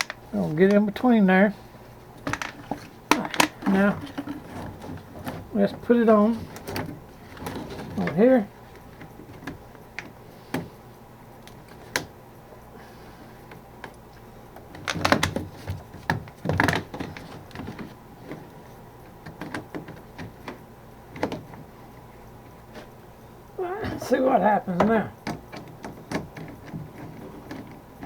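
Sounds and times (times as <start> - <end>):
plastic parts clicking and knocking: 0.0 - 0.8, 2.2 - 5.8, 8.9 - 10.7, 14.6 - 18.4, 19.2 - 21.6, 24.8 - 28.0
plastic parts rattling: 0.0 - 0.8, 2.2 - 8.2, 14.7 - 18.0.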